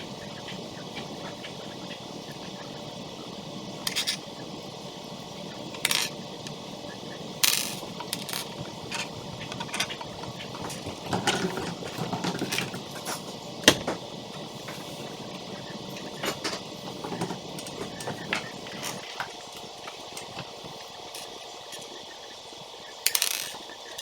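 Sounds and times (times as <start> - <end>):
plastic toy pieces clicking: 5.8 - 6.1, 7.4 - 9.0, 23.1 - 23.6.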